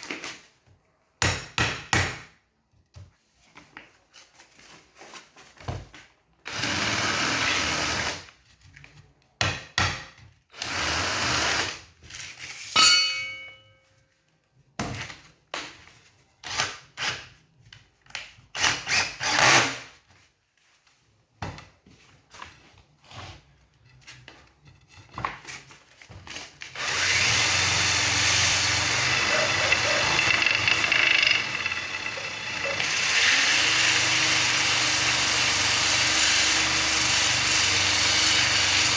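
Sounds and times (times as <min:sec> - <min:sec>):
knocks and handling sounds: 0:20.0 - 0:26.8
power tool running: 0:26.8 - 0:38.9.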